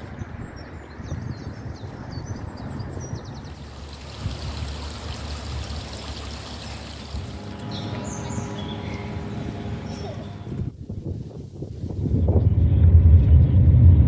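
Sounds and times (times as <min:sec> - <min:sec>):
running water stream: 0:02.4 - 0:11.7
high bird chirps: 0:07.6 - 0:10.5.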